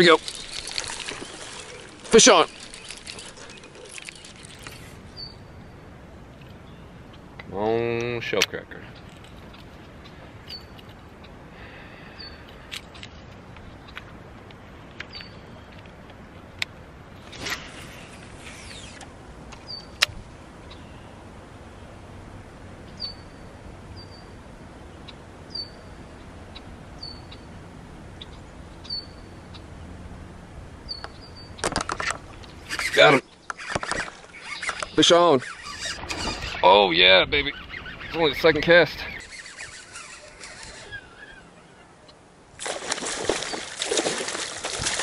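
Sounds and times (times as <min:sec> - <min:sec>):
bird chirping: 0:00.0 - 0:05.8, 0:08.9 - 0:11.4, 0:19.6 - 0:20.0, 0:22.9 - 0:27.6, 0:28.2 - 0:29.9, 0:30.8 - 0:31.7, 0:32.4 - 0:42.3
outdoor background noise: 0:00.0 - 0:45.0.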